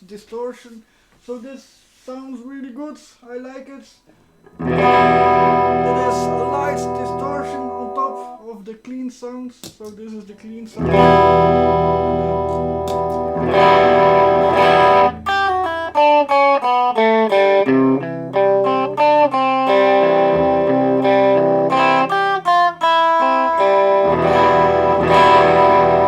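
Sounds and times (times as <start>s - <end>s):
clean electric guitar: 4.4s - 8.5s, 10.8s - 26.0s.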